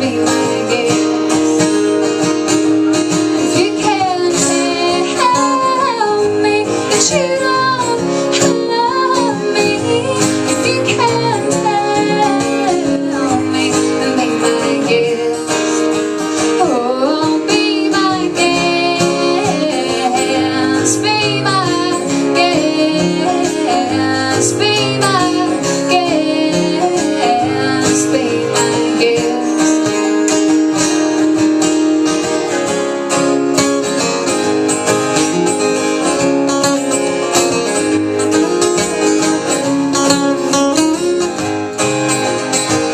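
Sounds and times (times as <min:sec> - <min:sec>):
woman singing: 0:00.0 - 0:01.7, 0:03.4 - 0:30.6
strummed acoustic guitar: 0:00.0 - 0:42.9.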